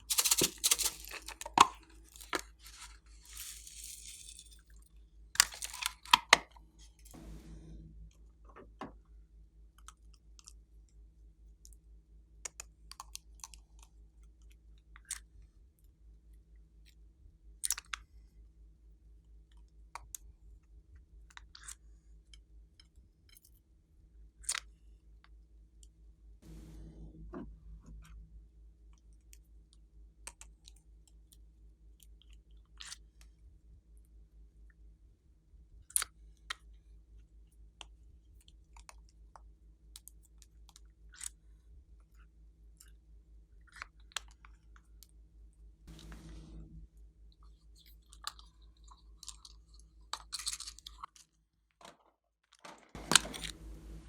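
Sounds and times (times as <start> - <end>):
faint low hum: 6.6 - 12.4, 26.2 - 32.5, 39.6 - 49.9, 53.0 - 54.0
steady low hum: 7.1 - 9.3, 26.4 - 28.8, 45.9 - 47.3, 53.0 - 54.0.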